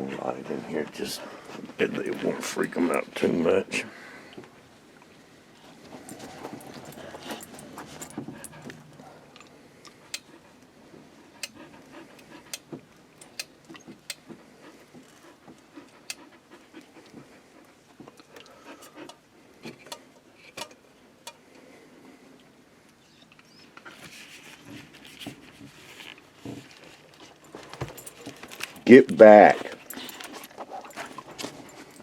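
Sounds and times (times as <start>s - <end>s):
dog panting: 5.8s - 19.3s, 29.5s - 32.0s.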